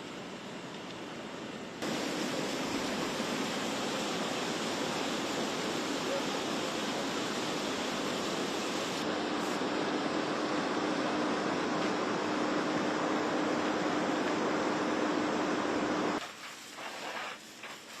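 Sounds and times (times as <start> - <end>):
steady rushing noise: 1.8 - 10.3.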